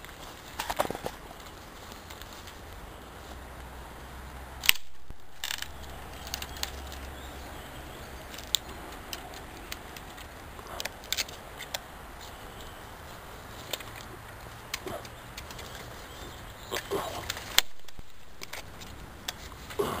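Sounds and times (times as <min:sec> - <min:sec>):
campfire crackling: 0:00.0 - 0:20.0
fire popping and snapping: 0:00.0 - 0:20.0.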